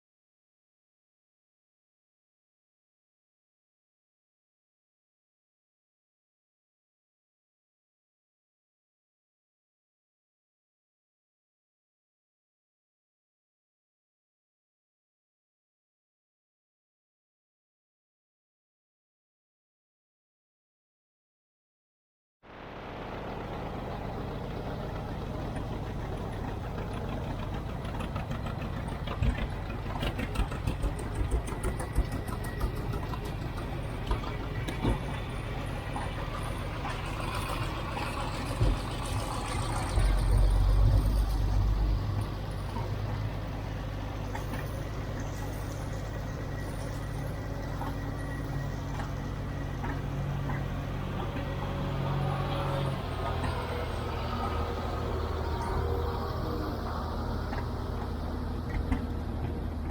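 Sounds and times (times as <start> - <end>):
tractor engines running: 22.5 - 59.9
clatters and knocks: 25.5 - 42.9.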